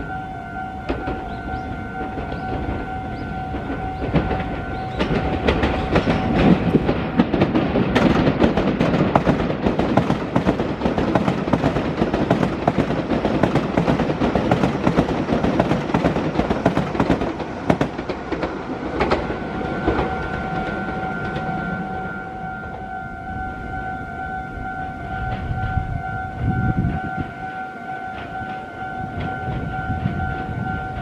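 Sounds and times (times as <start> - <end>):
high-pitched alarm tone: 0.0 - 8.3, 18.9 - 31.0
train wheels clattering: 0.0 - 31.0.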